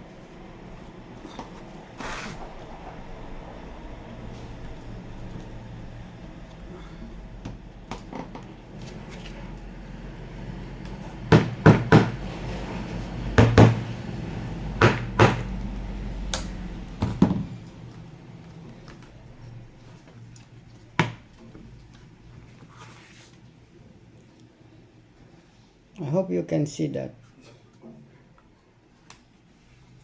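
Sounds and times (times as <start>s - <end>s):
steady low hum: 0.0s - 22.6s
sharp knocks on wood: 11.3s - 12.2s, 13.4s - 13.8s, 14.8s - 15.5s, 21.0s - 21.2s.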